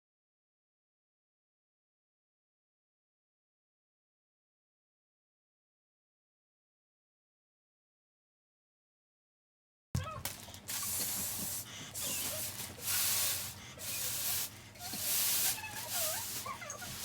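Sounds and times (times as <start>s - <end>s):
balloon pump air hissing: 10.6s - 17.0s.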